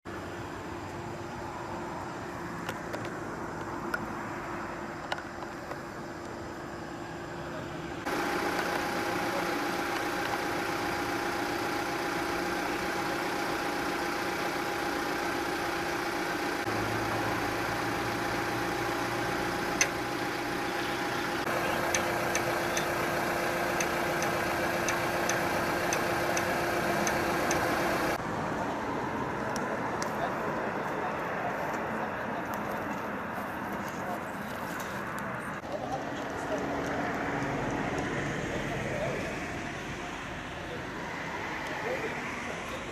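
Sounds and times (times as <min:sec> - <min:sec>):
vehicle engine idling: 0:00.1 - 0:42.9
flasher relay ticking: 0:16.7 - 0:20.7, 0:21.4 - 0:28.2.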